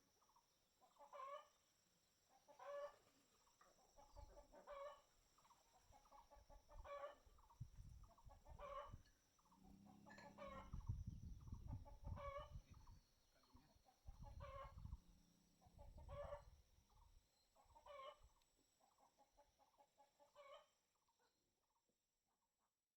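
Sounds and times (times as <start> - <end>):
chickens clucking: 3.8 - 13.0, 13.6 - 15.0, 15.7 - 16.5, 17.6 - 18.3, 19.3 - 20.7.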